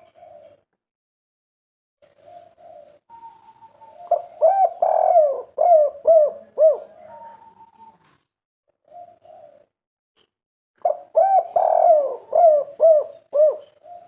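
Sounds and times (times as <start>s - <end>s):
dove cooing: 0.0s - 0.6s, 2.1s - 8.1s, 8.8s - 9.7s, 10.8s - 14.0s.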